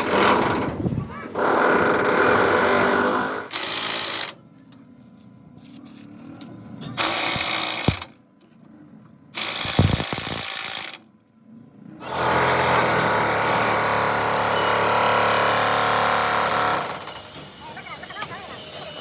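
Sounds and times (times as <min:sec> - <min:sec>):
power tool running: 0:07.0 - 0:08.2, 0:09.4 - 0:11.0, 0:12.0 - 0:17.6.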